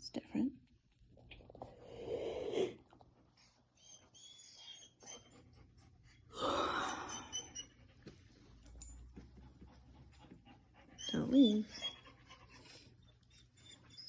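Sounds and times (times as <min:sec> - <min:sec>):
faint high squeak: 0:11.0 - 0:14.0.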